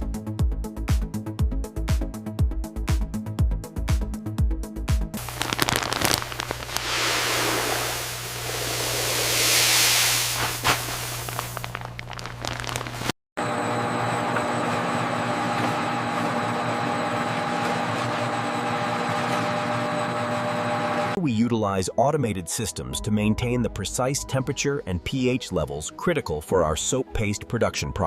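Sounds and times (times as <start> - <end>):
loud hiss with crackles: 5.2 - 13.1.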